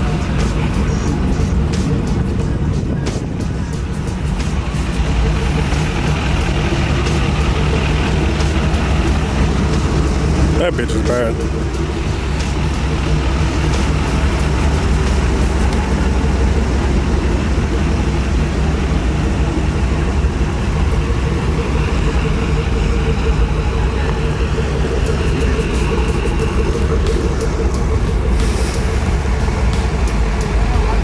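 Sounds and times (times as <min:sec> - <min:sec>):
vehicle engine rumbling: 0:00.0 - 0:31.0.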